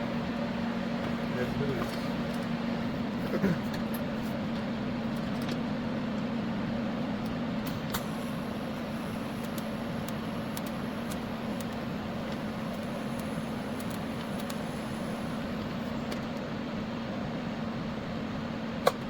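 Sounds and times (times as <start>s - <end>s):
welding machine hum: 7.2s - 16.6s.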